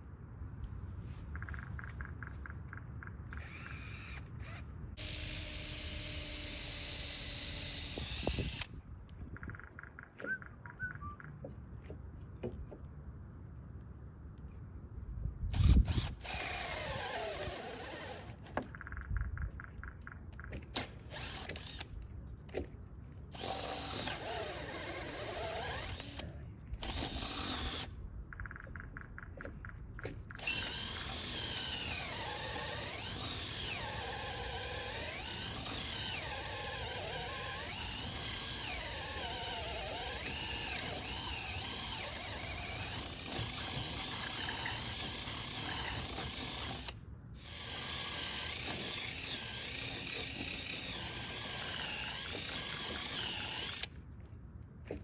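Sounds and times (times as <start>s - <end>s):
power drill running: 3.4s - 8.7s, 15.6s - 18.4s, 21.1s - 21.9s, 23.3s - 26.2s, 26.8s - 27.9s, 30.4s - 53.9s.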